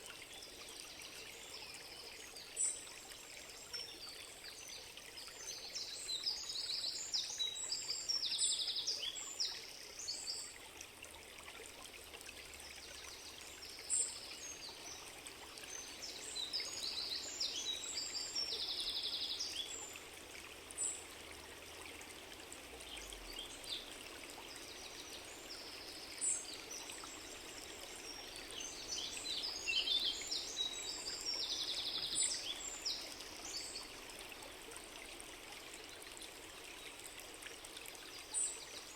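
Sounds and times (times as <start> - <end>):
stream of water running: 0.0 - 38.9
small birds singing: 24.5 - 34.4.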